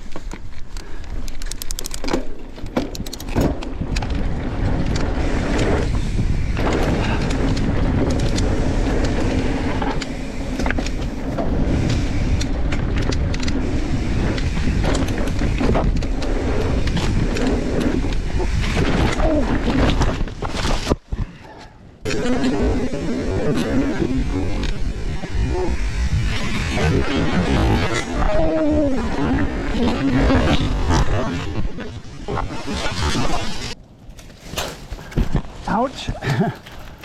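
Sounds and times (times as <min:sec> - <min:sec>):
bike clicking and knocking over bumps: 0:00.0 - 0:21.1
bike tyres rumbling on dirt trail: 0:00.0 - 0:37.0.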